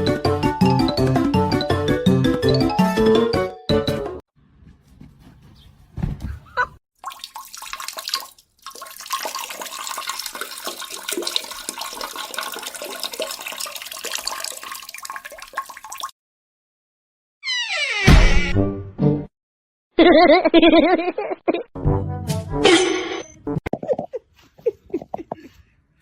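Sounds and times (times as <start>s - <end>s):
water rushing and splashing: 7.0s - 16.1s.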